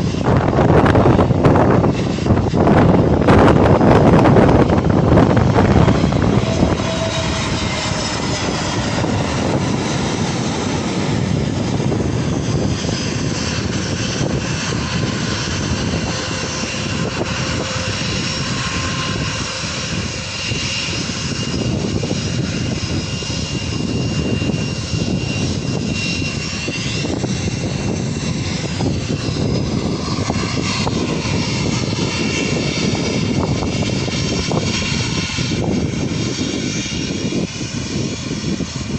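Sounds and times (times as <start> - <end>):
jet engines running with whine: 0.0 - 38.9.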